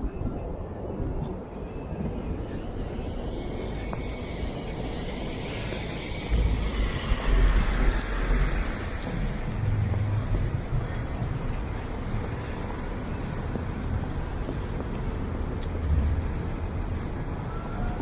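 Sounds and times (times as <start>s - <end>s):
deep low rumble: 0.0s - 18.0s
cars passing: 3.6s - 18.0s.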